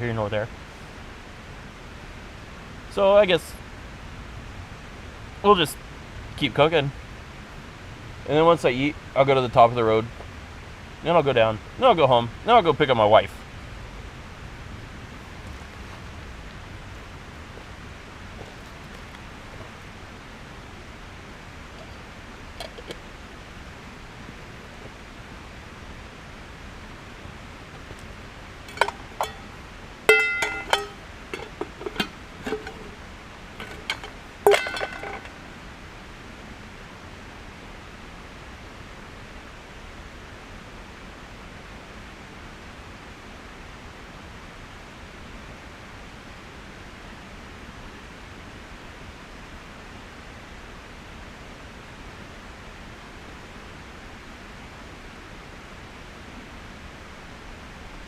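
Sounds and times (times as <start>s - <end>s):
background hiss: 0.0s - 58.0s
stove burner flame hissing: 13.2s - 37.4s
metal pots clinking: 21.7s - 23.0s, 28.6s - 35.6s.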